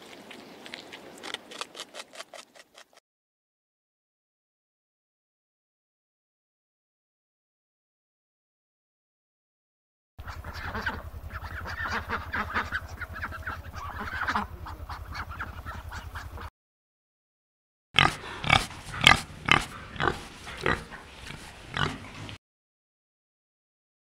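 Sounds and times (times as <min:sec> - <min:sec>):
ducks calling: 0:10.2 - 0:16.5, 0:18.0 - 0:22.4
warthog grunting: 0:18.0 - 0:22.4.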